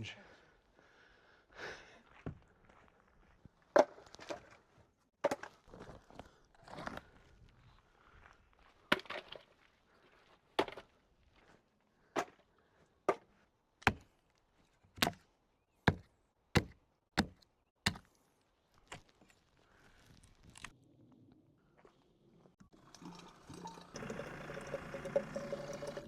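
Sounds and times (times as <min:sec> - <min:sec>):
axe chopping firewood: 0:13.1 - 0:14.1, 0:15.0 - 0:15.2, 0:15.9 - 0:18.2.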